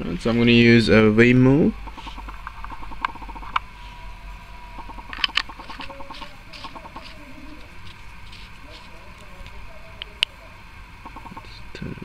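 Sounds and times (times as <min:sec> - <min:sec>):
faint rapid ticking: 0:01.7 - 0:03.7, 0:09.3 - 0:12.0.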